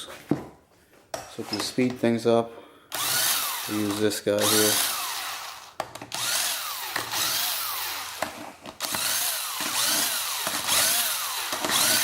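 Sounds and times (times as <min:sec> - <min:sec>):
power driver motor whining: 0:02.9 - 0:12.0.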